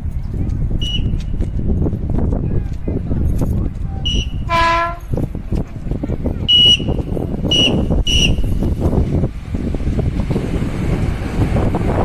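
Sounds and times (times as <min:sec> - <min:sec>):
freight train rumbling on rails: 0:00.0 - 0:12.0
shrill whistle blasts: 0:00.8 - 0:01.2, 0:04.1 - 0:04.7, 0:06.5 - 0:08.6.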